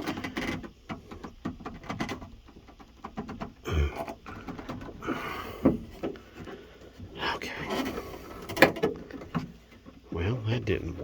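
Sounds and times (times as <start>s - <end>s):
rubber gasket clicking and rubbing: 0.0s - 6.9s.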